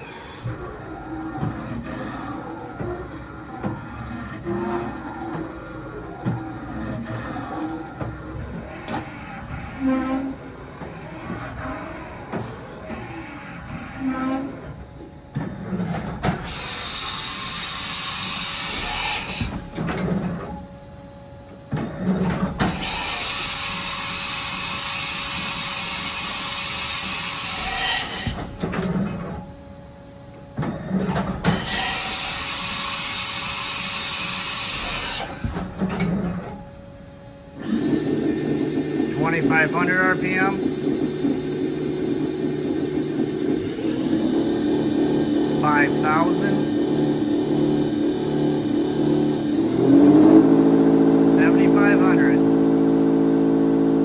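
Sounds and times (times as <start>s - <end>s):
machine whirring with high whines: 30.9s - 54.0s.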